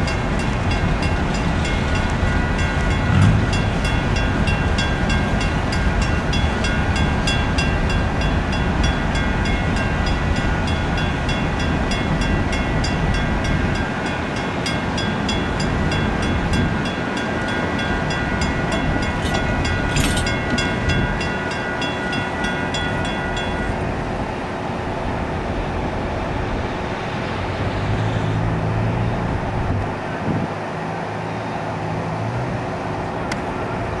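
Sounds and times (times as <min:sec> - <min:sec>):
grade-crossing bell ringing: 0:00.0 - 0:24.7
train wheels rumbling on rails: 0:00.0 - 0:27.3
low engine hum: 0:00.0 - 0:34.0.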